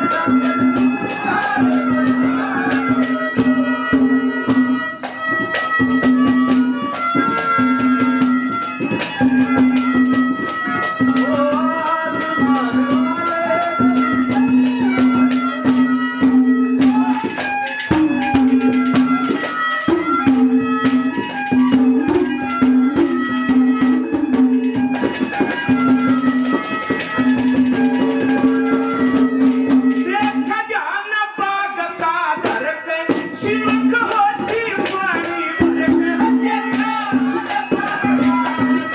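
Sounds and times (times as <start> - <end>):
folk melody line: 0.0 - 30.6, 32.1 - 38.9
hand drum rhythm: 0.0 - 30.6, 32.0 - 38.9
low drone note: 28.0 - 29.9.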